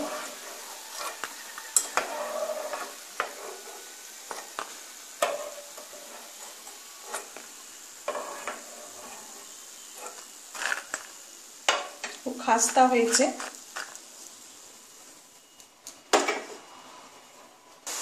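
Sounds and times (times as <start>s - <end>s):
metal ladle scraping pan: 0.0s - 7.4s, 8.0s - 11.0s
food sizzling in hot oil: 0.0s - 18.0s.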